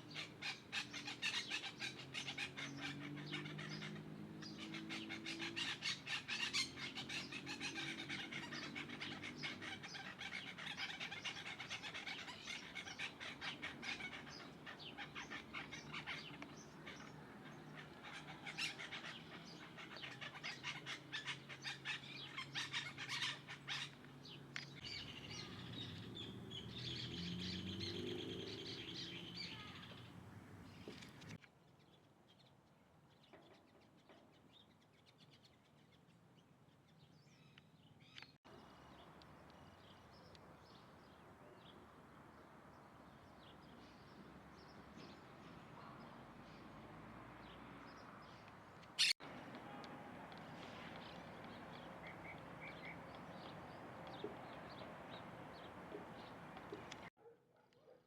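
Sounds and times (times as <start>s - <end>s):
birds chirping: 0.0s - 57.1s.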